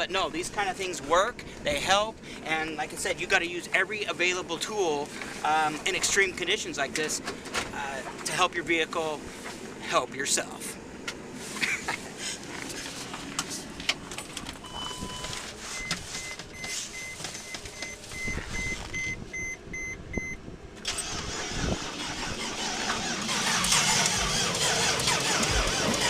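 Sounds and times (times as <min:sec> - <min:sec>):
car warning chime beeping: 0:14.6 - 0:20.4
starter cranking car engine: 0:20.8 - 0:26.0.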